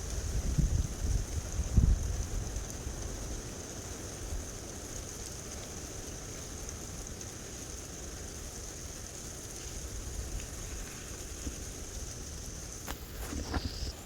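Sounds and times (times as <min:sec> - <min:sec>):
gusty wind: 0:00.0 - 0:02.6
wind buffeting microphone: 0:00.0 - 0:02.6.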